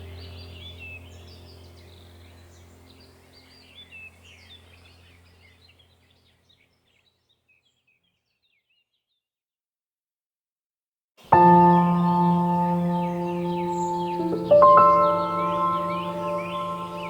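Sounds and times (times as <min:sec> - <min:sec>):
low steady hum: 0:00.0 - 0:06.6, 0:11.4 - 0:17.0
birds chirping and trilling: 0:00.0 - 0:09.2, 0:11.3 - 0:17.0.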